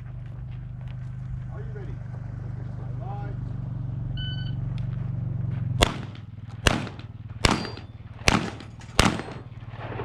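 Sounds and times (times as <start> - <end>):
shotgun blasts with echo: 5.8 - 10.0.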